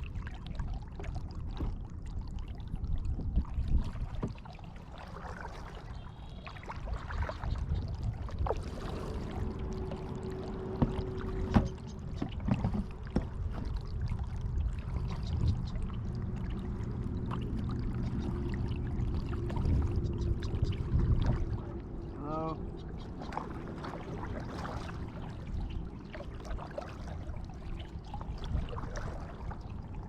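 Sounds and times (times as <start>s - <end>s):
paddle splashing in water: 0.0s - 22.2s, 22.9s - 30.0s
low rumble: 7.1s - 30.0s.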